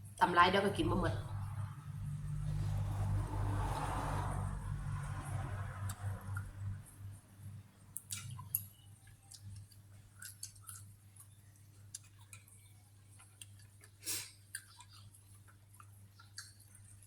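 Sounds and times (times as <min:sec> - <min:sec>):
low steady hum: 0:00.0 - 0:13.9
person chewing: 0:08.0 - 0:17.0.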